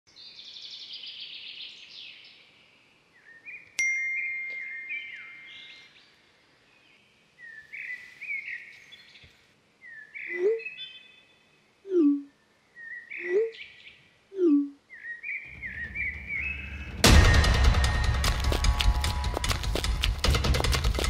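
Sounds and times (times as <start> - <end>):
birds singing and chirping: 6.8 - 11.4, 12.8 - 14.0, 14.9 - 17.0.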